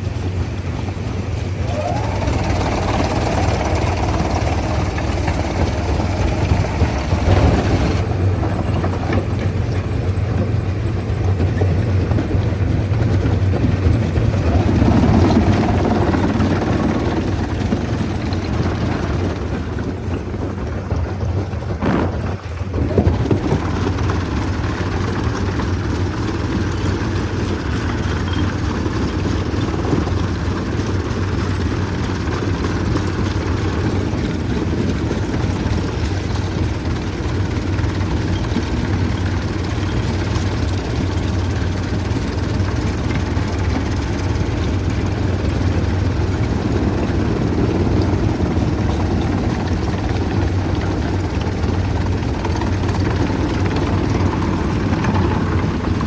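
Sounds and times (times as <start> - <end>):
machinery clatter: 0.0 - 56.0
stone crushing machinery humming: 0.1 - 56.0.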